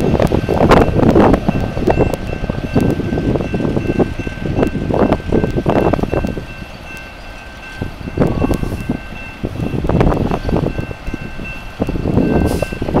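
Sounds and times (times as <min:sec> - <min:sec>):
freight train rolling past: 0:00.0 - 0:13.0
wind buffeting microphone: 0:00.0 - 0:13.0.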